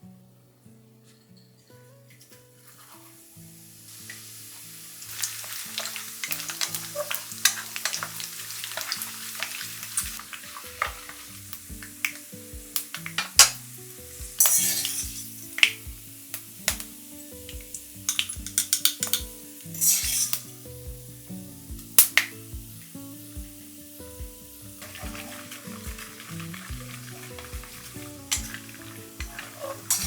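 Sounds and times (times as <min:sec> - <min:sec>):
metal utensil scraping a pan: 0:02.1 - 0:03.2, 0:05.1 - 0:11.4, 0:14.4 - 0:15.4, 0:19.8 - 0:20.5, 0:24.8 - 0:30.0
food sizzling in hot oil: 0:02.3 - 0:30.0.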